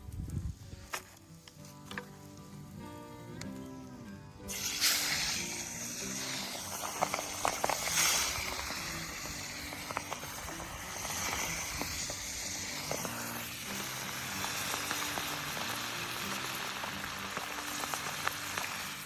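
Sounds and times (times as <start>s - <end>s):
fish sizzling in hot oil: 4.4s - 19.0s
oil popping and crackling: 4.4s - 19.0s.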